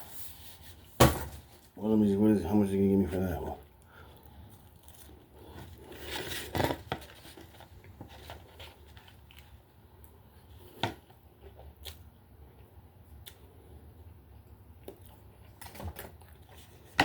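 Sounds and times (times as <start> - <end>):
rustling and handling noises: 2.9 - 9.6.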